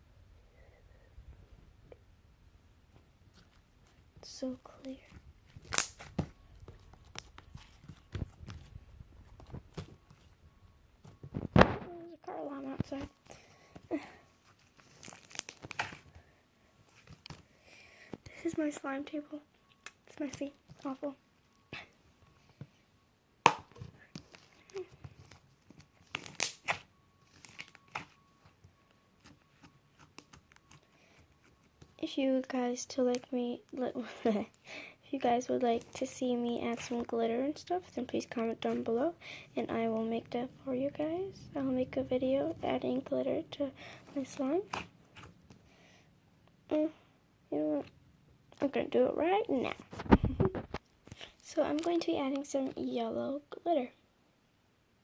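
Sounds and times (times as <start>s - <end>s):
slime squished by hand: 5.5s - 8.7s.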